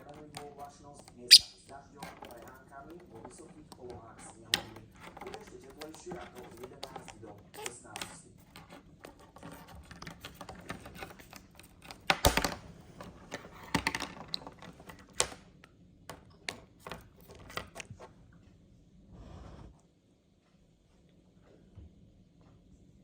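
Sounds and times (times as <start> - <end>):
budgie pecking a toy: 0.0 - 12.4.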